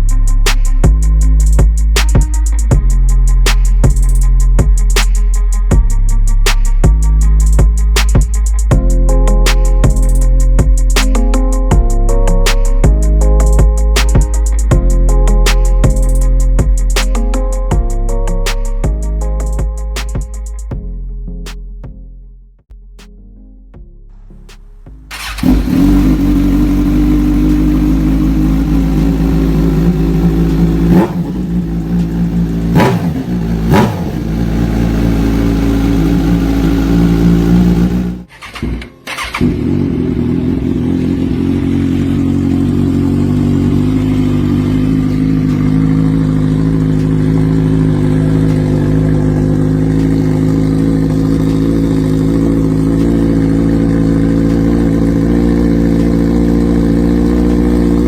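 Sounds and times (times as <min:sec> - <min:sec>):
engine revving: 0:25.1 - 0:58.0
motorcycle engine idling: 0:25.1 - 0:58.0.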